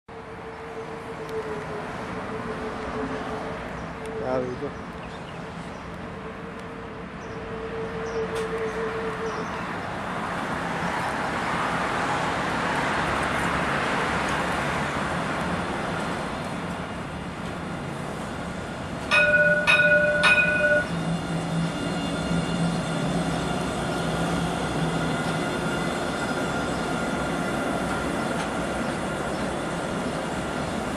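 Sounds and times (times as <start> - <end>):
tram running noise: 0.1 - 30.9
tram horn blasts: 6.0 - 11.0, 19.0 - 29.8.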